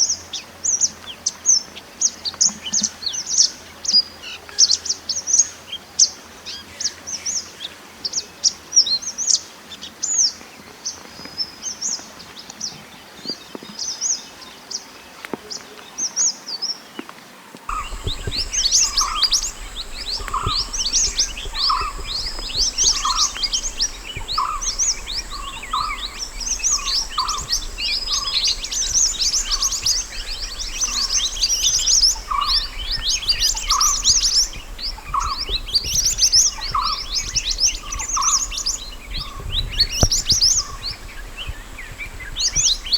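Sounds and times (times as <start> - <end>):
low repeating bird note: 17.7 - 39.4
faint steady hum: 17.7 - 42.9
songbirds chirping and trilling: 17.7 - 42.9.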